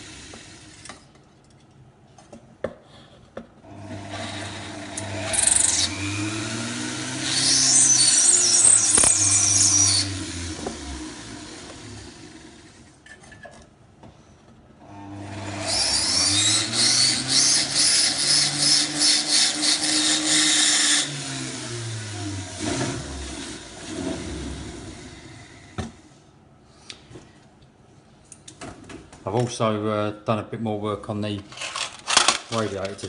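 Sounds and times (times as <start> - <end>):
power tool grinding metal: 3.7 - 12.8, 15.2 - 25.3.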